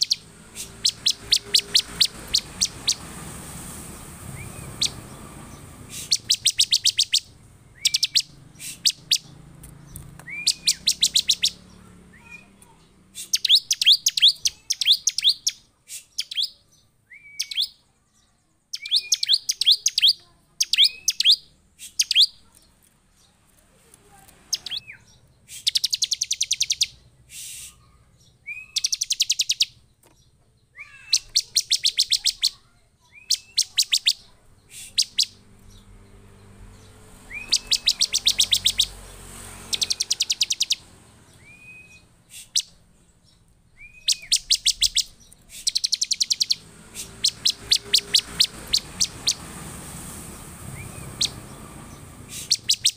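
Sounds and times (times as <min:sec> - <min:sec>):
bird singing rapid high chips: 0:00.0 - 0:17.9, 0:18.6 - 0:22.5, 0:24.5 - 0:29.9, 0:30.8 - 0:52.9.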